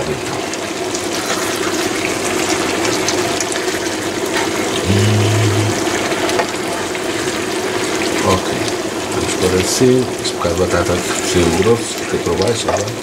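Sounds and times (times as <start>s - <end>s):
potatoes sizzling in a pan: 0.0s - 13.0s
brief low hum: 4.8s - 5.8s.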